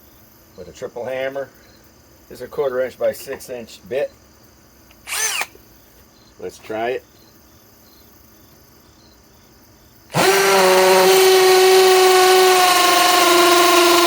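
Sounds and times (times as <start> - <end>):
hammer drill drilling into brick: 5.0 - 5.6, 10.1 - 14.0.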